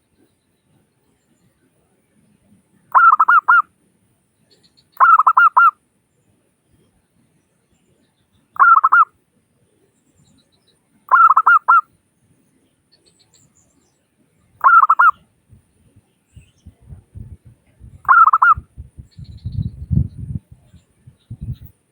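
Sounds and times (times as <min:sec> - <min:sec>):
zebra dove cooing: 0:02.9 - 0:03.6, 0:05.0 - 0:05.7, 0:08.6 - 0:09.1, 0:11.1 - 0:11.8, 0:14.6 - 0:15.2, 0:18.0 - 0:19.3.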